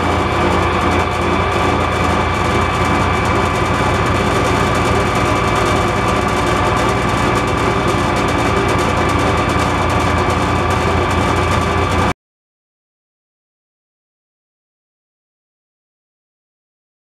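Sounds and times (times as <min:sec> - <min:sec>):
high whine: 0:00.0 - 0:12.1
metal lathe running: 0:00.0 - 0:12.1.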